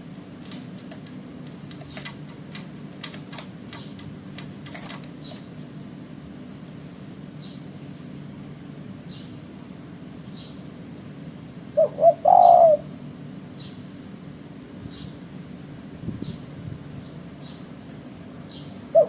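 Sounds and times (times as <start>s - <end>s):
steady low hum: 0.0s - 19.0s
small birds chirping: 3.7s - 4.0s, 5.2s - 5.5s, 6.8s - 8.3s, 9.0s - 10.7s, 13.6s - 13.9s, 14.8s - 15.2s, 16.2s - 17.8s, 18.4s - 19.0s
dove cooing: 11.7s - 13.0s.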